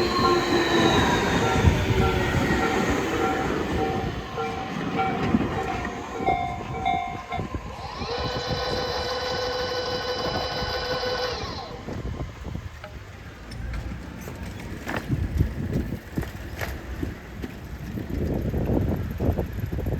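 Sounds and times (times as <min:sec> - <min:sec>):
electric train inverter whine: 0:00.0 - 0:14.2
clunks: 0:00.0 - 0:18.4
wind noise: 0:00.0 - 0:19.9.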